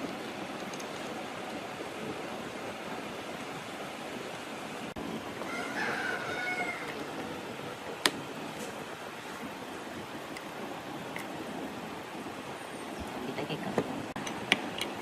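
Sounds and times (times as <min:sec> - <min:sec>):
rooster crowing: 0:05.4 - 0:07.2.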